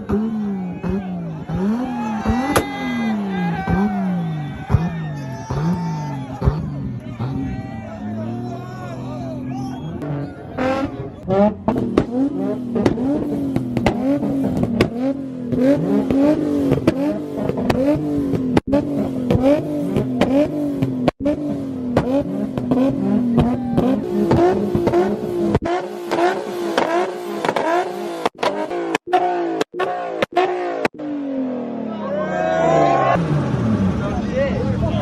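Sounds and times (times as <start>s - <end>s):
exhaust pops and crackles: 0.0s - 7.3s, 10.8s - 31.0s
car engine pulsing at high revs: 0.0s - 32.0s, 33.1s - 35.0s.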